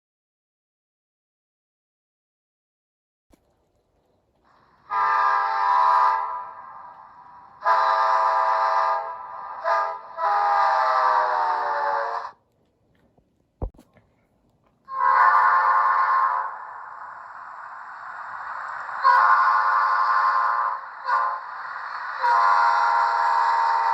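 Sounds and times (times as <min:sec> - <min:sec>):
locomotive air horn blasts: 0:04.8 - 0:12.3, 0:14.9 - 0:16.7, 0:19.0 - 0:21.6, 0:22.2 - 0:23.9.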